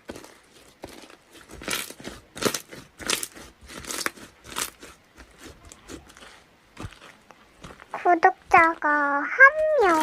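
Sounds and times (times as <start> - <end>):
short crunches: 0.0 - 10.0.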